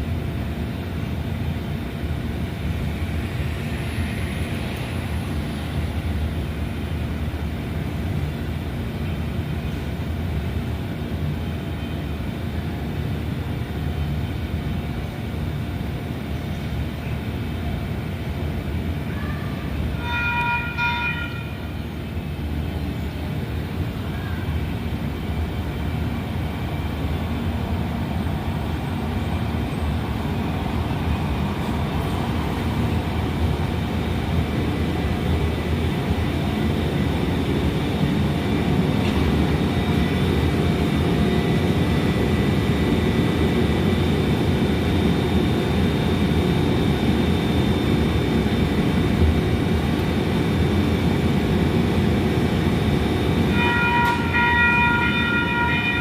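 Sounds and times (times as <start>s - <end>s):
train rumbling: 0.0s - 56.0s
train horn: 19.1s - 21.7s, 53.5s - 56.0s.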